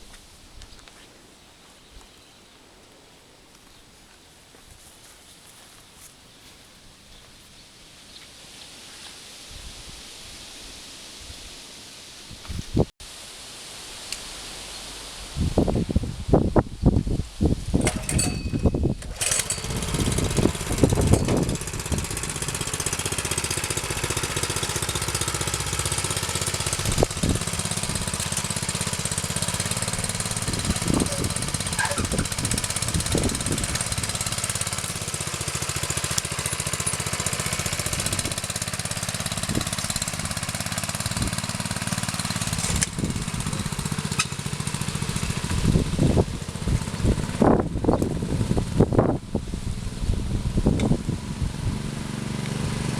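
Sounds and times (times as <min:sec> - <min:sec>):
wood splitter motor running: 0:17.8 - 0:52.9.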